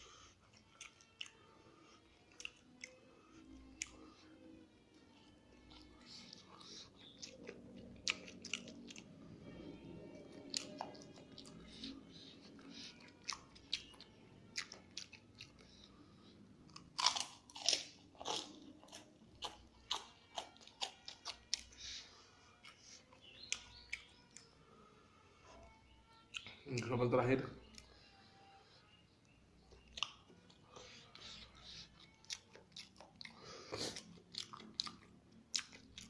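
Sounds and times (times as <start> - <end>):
person chewing with wet smacks: 0.4 - 3.0, 3.6 - 4.2, 5.6 - 9.1, 10.3 - 15.9, 16.7 - 22.0, 22.6 - 24.5, 29.7 - 36.0.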